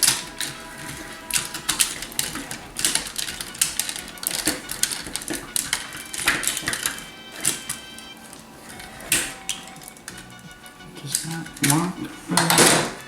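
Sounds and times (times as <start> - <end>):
plastic toy parts clicking: 0.0 - 10.4.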